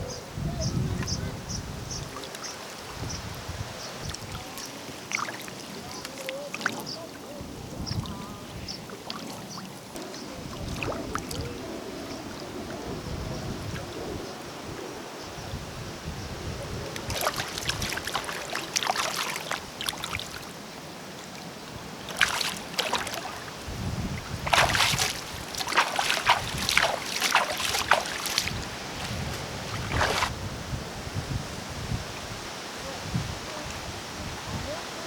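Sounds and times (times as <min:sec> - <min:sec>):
water splashing and sloshing: 0:01.9 - 0:12.8, 0:16.9 - 0:30.4.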